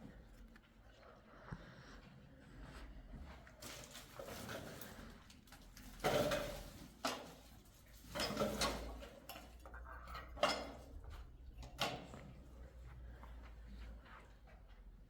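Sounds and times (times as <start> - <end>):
dishes and pots clattering: 5.9 - 11.0.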